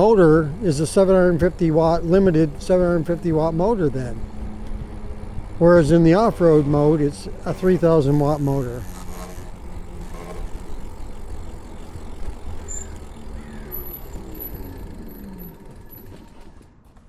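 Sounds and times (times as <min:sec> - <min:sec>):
wind and road rush: 0:00.0 - 0:16.6
faint motor whine: 0:00.0 - 0:17.0.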